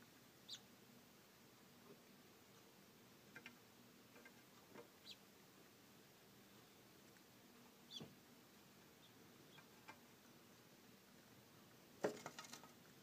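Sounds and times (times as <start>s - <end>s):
low steady hum: 0.0s - 13.0s
faint high chirps and clicks: 0.4s - 0.7s, 3.3s - 5.2s, 6.6s - 8.2s, 9.0s - 10.7s.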